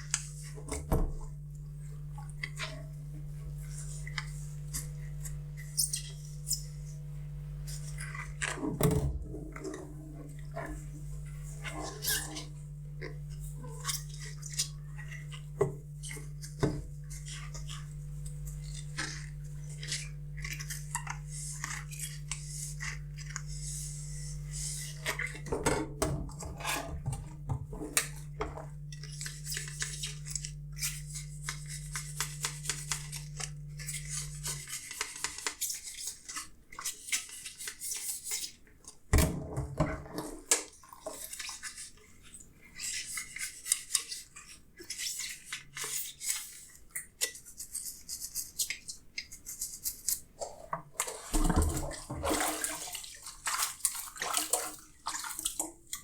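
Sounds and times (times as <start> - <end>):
steady low hum: 0.0 - 34.9
scrubbing dishes: 0.0 - 38.5, 47.4 - 56.0.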